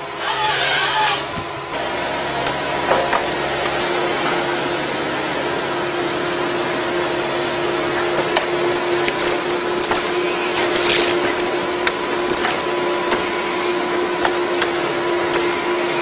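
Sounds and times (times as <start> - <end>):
tree-cutting machine motor: 0.0 - 16.0
wood cracking: 9.0 - 13.4.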